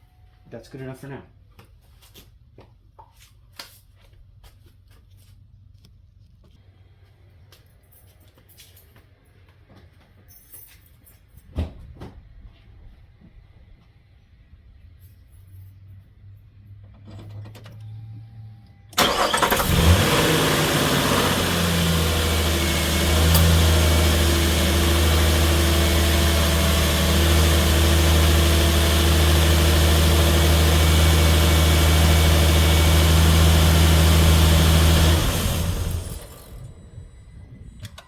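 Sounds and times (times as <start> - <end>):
car engine starting and idling: 16.8 - 38.0.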